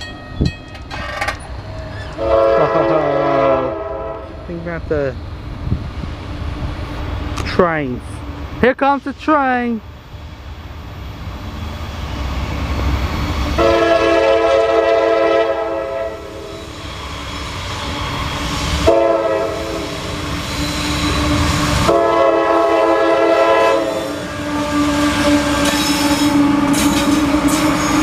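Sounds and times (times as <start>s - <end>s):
diesel locomotives rumbling: 0.0s - 28.0s
train air horn blasts: 2.2s - 4.4s, 13.6s - 16.7s, 18.6s - 28.0s.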